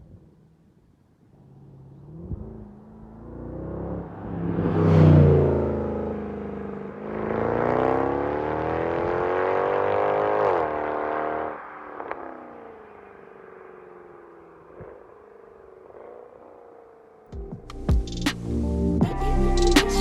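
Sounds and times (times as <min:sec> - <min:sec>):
car engine accelerating: 0:01.2 - 0:17.3.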